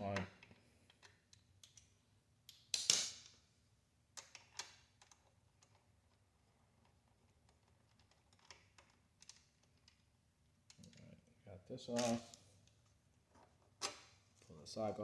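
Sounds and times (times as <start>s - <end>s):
small parts clicking and knocking: 0.0s - 3.4s, 4.1s - 11.2s, 11.9s - 14.2s
parts clattering: 11.9s - 12.4s.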